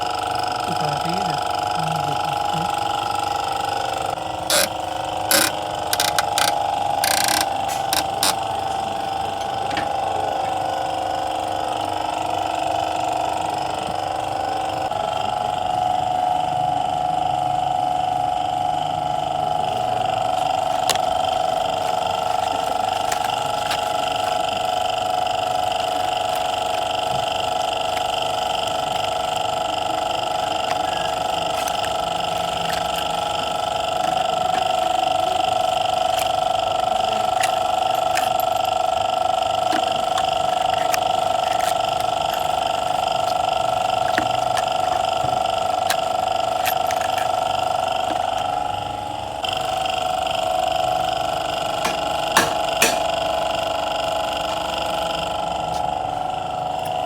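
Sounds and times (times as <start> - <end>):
steady machine hum: 0.0 - 57.0
sharp clicks: 4.5 - 8.5.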